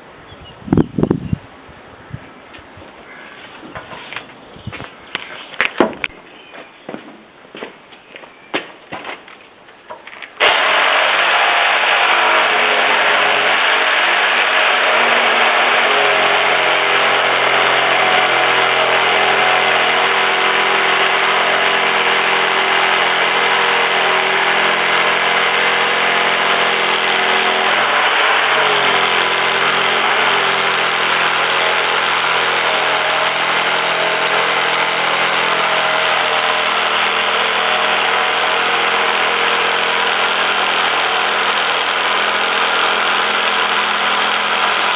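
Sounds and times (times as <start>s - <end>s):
motor running steadily: 10.4s - 44.9s.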